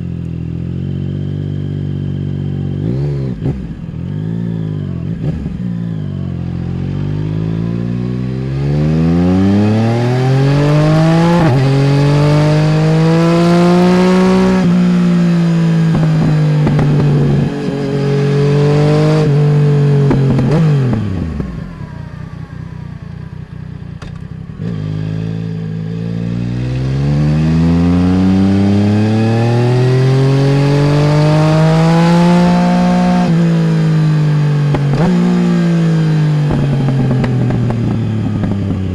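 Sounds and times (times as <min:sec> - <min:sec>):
motorcycle engine accelerating: 0:00.0 - 0:38.9
exhaust crackling on the overrun: 0:09.0 - 0:24.8.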